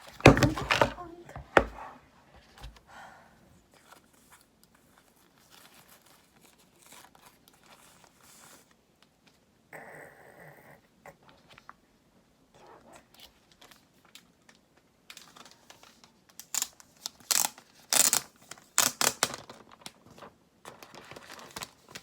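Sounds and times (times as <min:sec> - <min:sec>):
packaging crinkling and tearing: 0:03.8 - 0:08.7, 0:13.2 - 0:22.0.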